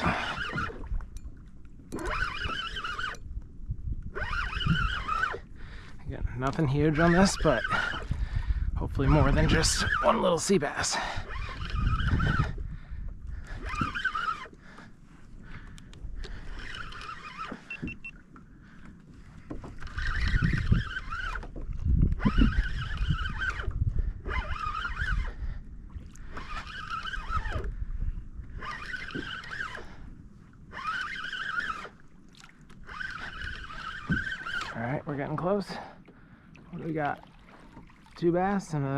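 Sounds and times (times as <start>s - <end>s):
fishing reel gears whirring: 0.0s - 3.4s, 4.0s - 8.2s, 8.8s - 18.3s, 19.6s - 35.8s
low rumble of wind and water: 0.0s - 38.9s.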